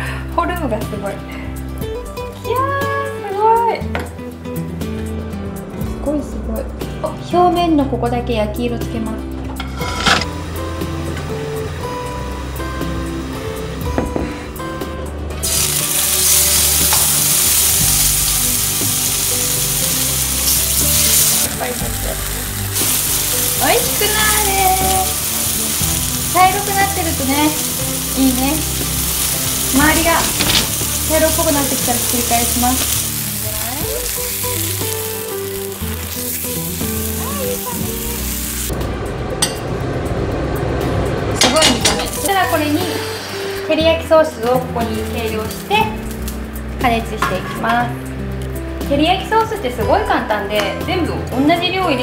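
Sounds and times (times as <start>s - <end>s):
background music: 0.0s - 52.0s
onions sizzling in a frying pan: 15.4s - 38.8s, 41.6s - 47.4s.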